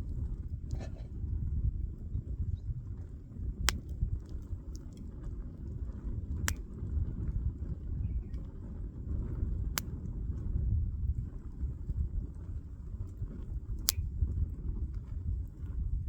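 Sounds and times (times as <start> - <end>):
campfire crackling: 2.9 - 10.4
sharp fire pops: 3.4 - 5.0, 6.1 - 7.2, 13.1 - 14.5.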